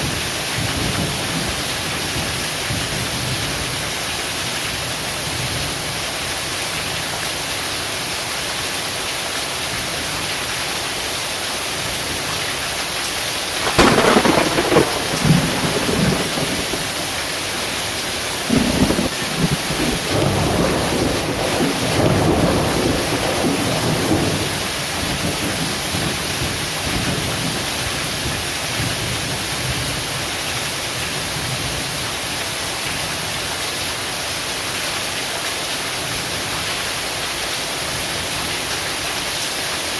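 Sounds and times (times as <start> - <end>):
heavy rain: 0.0 - 39.9
thunderclap rumbling: 13.6 - 27.6.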